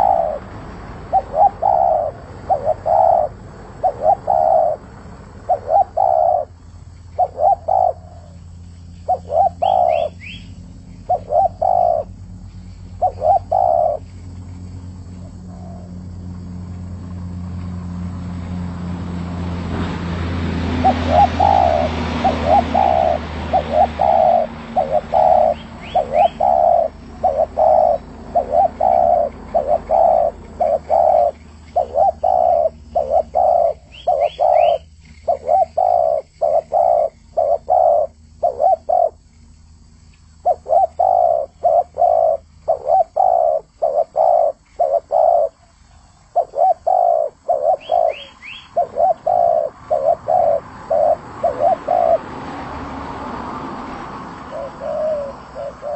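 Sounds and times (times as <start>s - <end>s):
dove cooing: 0.0s - 19.6s, 20.3s - 39.3s, 40.4s - 52.6s, 54.2s - 55.9s
small bird chirps: 5.5s - 16.0s, 20.8s - 52.2s, 54.4s - 55.9s.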